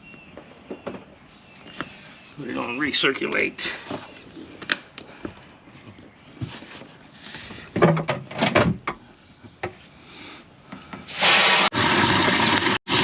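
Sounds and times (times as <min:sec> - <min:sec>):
pump rushing water: 0:11.1 - 0:13.0.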